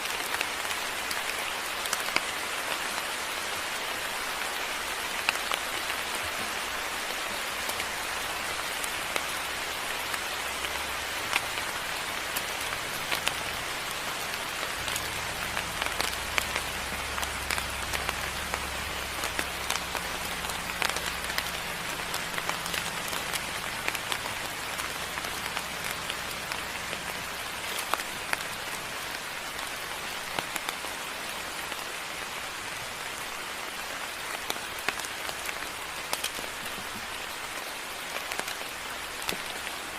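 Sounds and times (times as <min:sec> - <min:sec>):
raindrops ticking on surfaces: 0:00.0 - 0:39.9
steady rain: 0:00.0 - 0:39.9.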